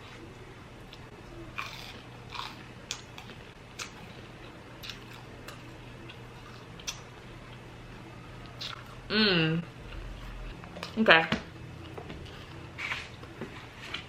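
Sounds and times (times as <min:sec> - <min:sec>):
steady low hum: 0:00.0 - 0:14.0
crunchy chewing: 0:00.8 - 0:07.6, 0:08.4 - 0:09.0.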